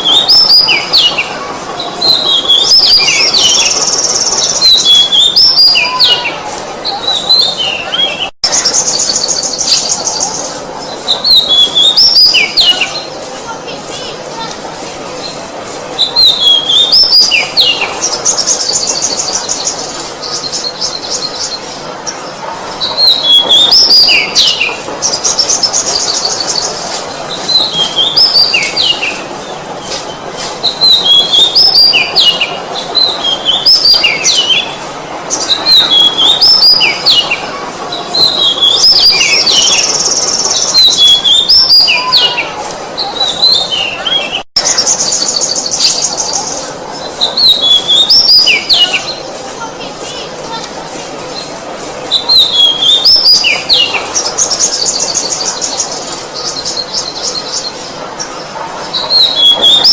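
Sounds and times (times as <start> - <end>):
bird singing whistled phrases: 30.6 - 34.7, 47.2 - 49.2, 52.1 - 55.8.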